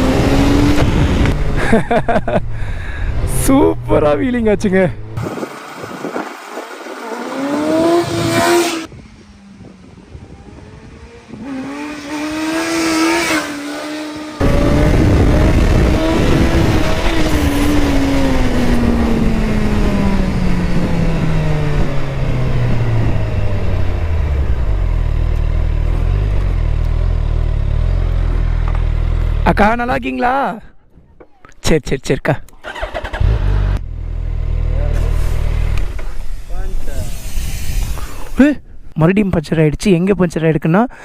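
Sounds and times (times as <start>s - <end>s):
motorcycle engine revving: 0.0s - 1.8s, 3.0s - 29.6s, 32.6s - 36.3s
heavy wind noise: 0.0s - 24.9s.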